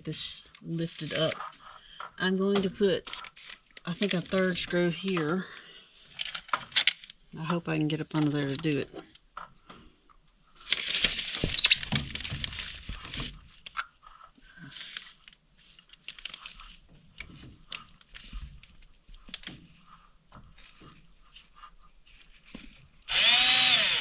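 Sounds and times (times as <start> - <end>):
scraping and rustling: 10.6 - 23.1.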